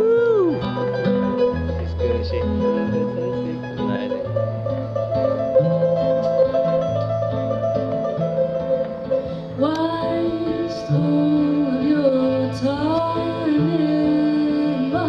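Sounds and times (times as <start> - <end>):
person singing: 0.0 - 0.7, 9.5 - 15.0
plucked string instruments: 0.0 - 15.0.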